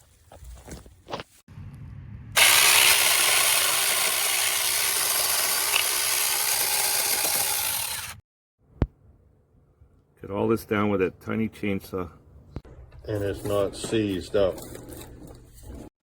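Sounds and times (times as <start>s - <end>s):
mini chainsaw running: 2.4s - 8.2s.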